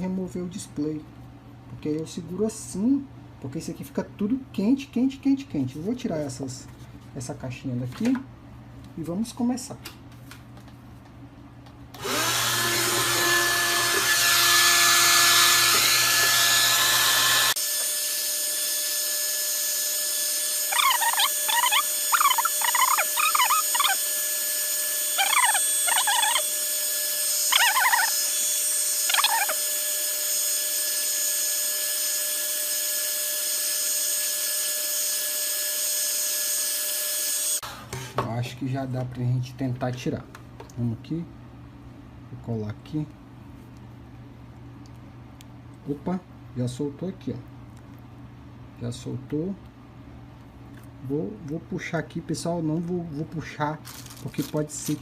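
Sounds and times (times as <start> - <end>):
hair dryer blowing with whine: 11.9 - 18.0
short chirping sounds: 20.7 - 24.0.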